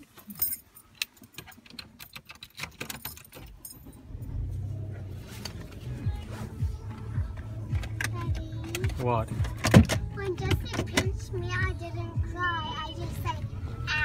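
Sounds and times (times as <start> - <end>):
car keys jangling: 0.0 - 6.2, 6.8 - 11.2
car engine starting and idling: 2.6 - 14.0.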